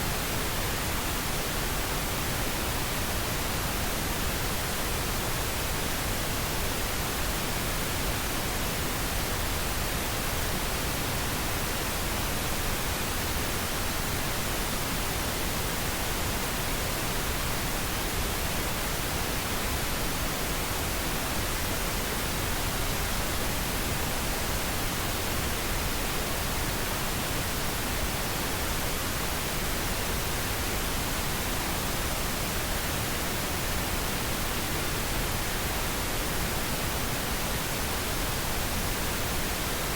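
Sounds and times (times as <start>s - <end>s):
steady synthetic noise hiss: 0.0s - 39.9s.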